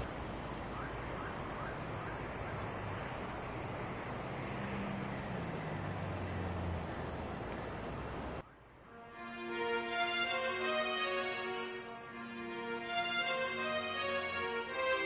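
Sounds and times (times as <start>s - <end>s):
car engine running at low revs: 0.0s - 8.4s.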